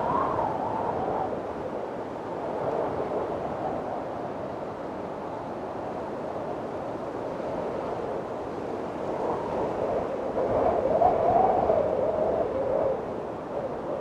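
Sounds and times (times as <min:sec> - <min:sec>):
wind blowing with howl: 0:00.0 - 0:14.0.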